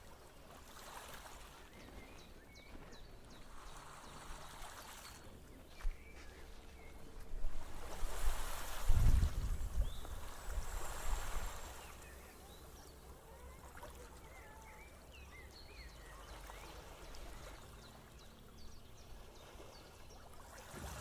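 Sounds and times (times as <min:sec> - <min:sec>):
soft surf washing: 0:00.0 - 0:15.0, 0:15.9 - 0:21.0
small birds chirping: 0:09.7 - 0:20.9.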